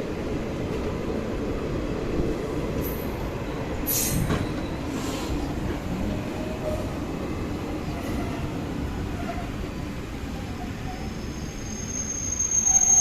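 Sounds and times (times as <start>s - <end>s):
passenger train rumbling on track: 0.0s - 13.0s.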